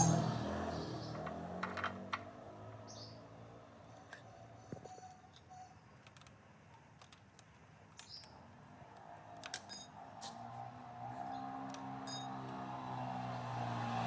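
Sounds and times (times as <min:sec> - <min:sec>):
small metal parts clicking: 0:09.4 - 0:09.9, 0:12.1 - 0:12.4
metallic clink: 0:09.6 - 0:09.9, 0:12.1 - 0:12.4.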